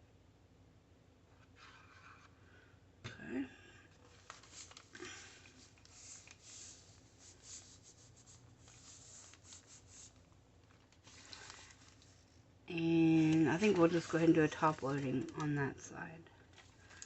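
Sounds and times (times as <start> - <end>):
paper rustling: 4.0 - 15.8, 16.4 - 17.0.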